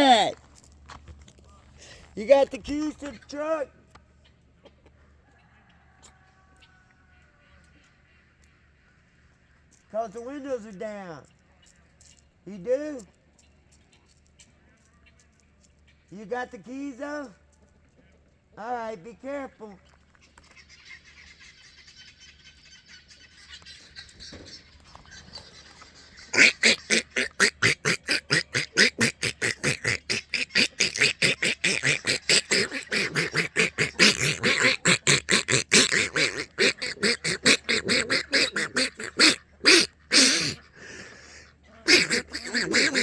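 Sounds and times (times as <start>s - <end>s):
ducks quacking: 20.2s - 43.0s.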